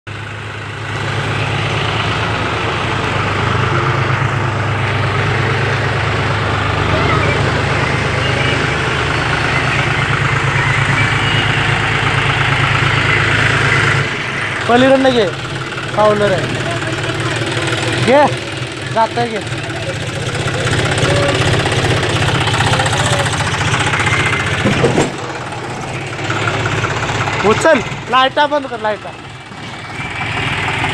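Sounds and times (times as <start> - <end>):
tractor engine throbbing: 0.1 - 30.9.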